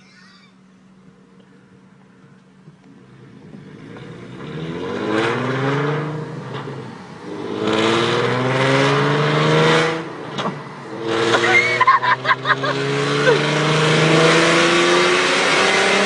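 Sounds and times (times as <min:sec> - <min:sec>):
car exhaust accelerating hard: 0:02.5 - 0:16.0.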